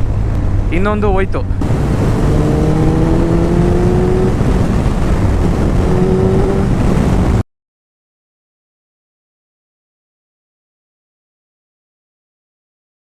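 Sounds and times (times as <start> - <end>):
wind rumble on microphone: 0.0 - 7.4
motorcycle engine running: 1.6 - 7.4.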